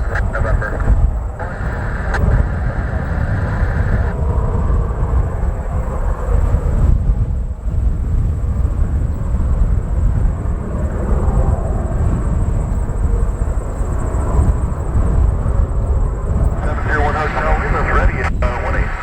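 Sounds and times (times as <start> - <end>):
aircraft engines running: 0.0 - 19.0
wind buffeting microphone: 0.0 - 19.0
thin high whine: 16.4 - 19.0.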